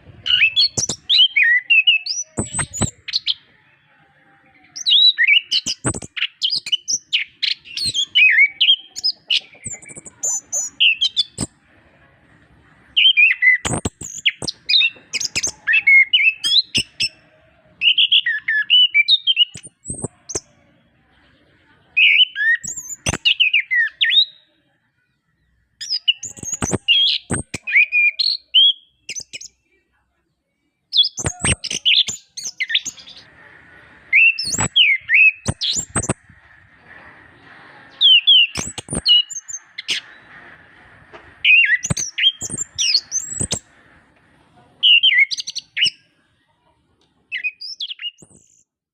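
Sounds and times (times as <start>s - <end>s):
thrush singing chirps and whistles: 0.2s - 3.5s, 4.7s - 11.5s, 13.0s - 17.2s, 17.8s - 20.5s, 22.0s - 24.4s, 25.8s - 29.6s, 30.9s - 33.3s, 34.1s - 36.5s, 37.4s - 40.7s, 41.4s - 43.7s, 44.8s - 46.1s, 47.3s - 48.8s
sharp clicks: 5.6s - 6.2s, 13.6s - 15.6s, 26.3s - 27.7s, 35.4s - 36.4s, 38.6s - 40.1s.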